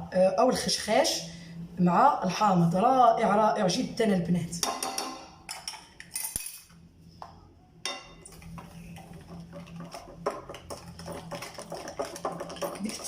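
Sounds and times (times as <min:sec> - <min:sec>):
utensil scraping mixing bowl: 0:08.3 - 0:13.0.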